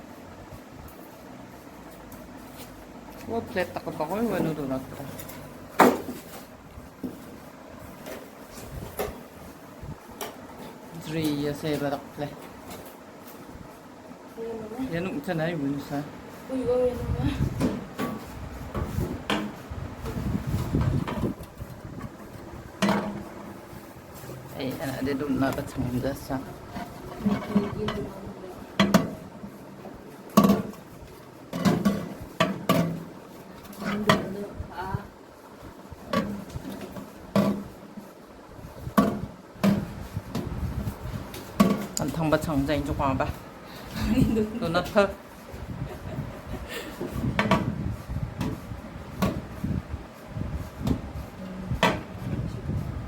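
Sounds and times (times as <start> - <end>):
metal racks knocking and clinking: 20.6 - 23.5.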